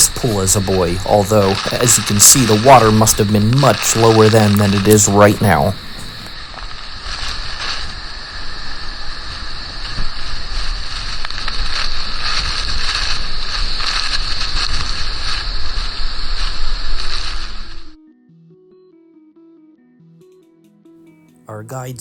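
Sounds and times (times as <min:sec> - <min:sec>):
waterfall roaring: 0:00.0 - 0:06.3
wind on microphone: 0:00.0 - 0:17.9.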